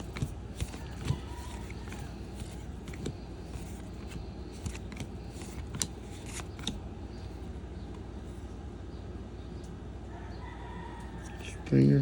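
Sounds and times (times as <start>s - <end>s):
cards sliding across stack: 0.0s - 7.6s
trading cards clicking: 0.0s - 8.0s.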